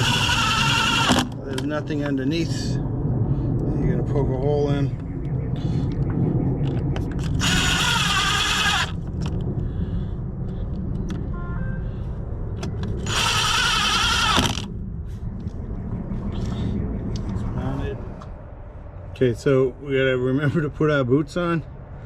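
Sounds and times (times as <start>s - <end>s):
power drill driving screws: 0.0s - 1.3s, 7.4s - 9.0s, 13.0s - 14.7s.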